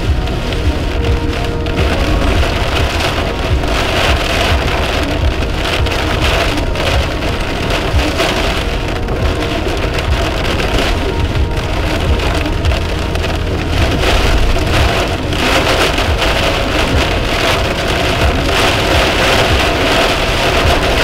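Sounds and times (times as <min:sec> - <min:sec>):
heavy rain on car windshield: 0:00.0 - 0:21.0
low road rumble: 0:00.0 - 0:21.0.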